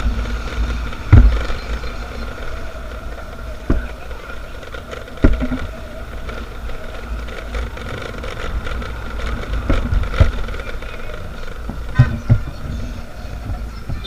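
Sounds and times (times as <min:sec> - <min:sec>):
motorcycle engine running: 0:00.0 - 0:14.0
wind rumble on microphone: 0:00.0 - 0:14.0
sharp knocks: 0:04.7 - 0:05.7.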